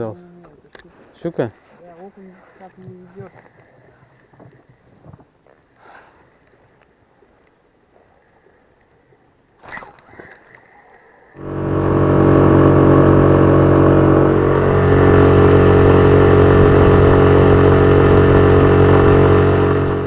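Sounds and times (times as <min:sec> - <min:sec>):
outboard motor running: 0:11.4 - 0:20.0.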